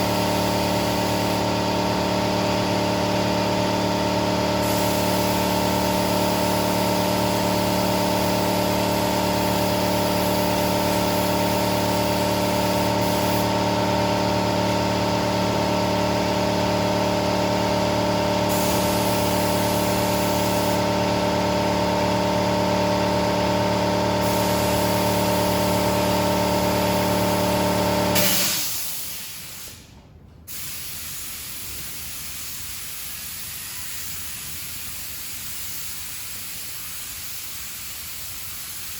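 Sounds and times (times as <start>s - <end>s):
paint spray gun hissing: 0.0s - 1.6s, 4.6s - 13.9s, 18.5s - 21.0s, 24.2s - 29.8s, 30.5s - 38.9s
air compressor motor hum: 0.0s - 38.9s.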